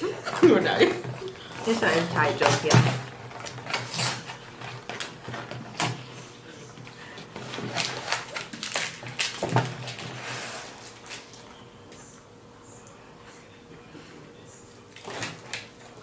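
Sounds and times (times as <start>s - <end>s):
plastic wrapper crinkling: 6.8s - 11.6s.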